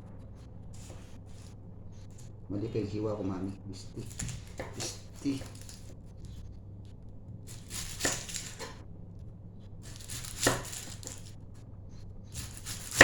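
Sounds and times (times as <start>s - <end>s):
low hum: 0.0s - 13.0s
blade scraping board: 0.3s - 2.3s, 7.5s - 8.8s, 9.9s - 11.3s, 12.3s - 13.0s
knife chopping onion on board: 3.8s - 5.8s, 9.8s - 11.2s, 12.4s - 13.0s.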